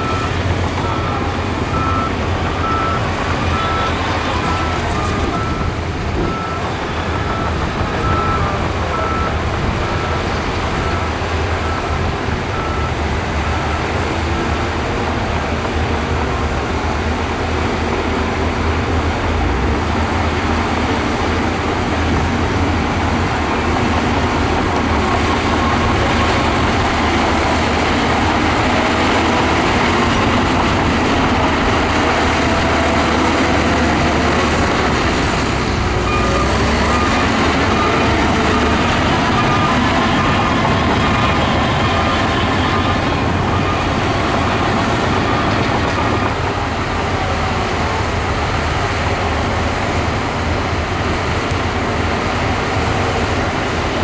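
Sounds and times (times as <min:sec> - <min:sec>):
heavy diesel machinery running: 0:00.0 - 0:54.0
back-up alarm beeping: 0:20.0 - 0:46.3.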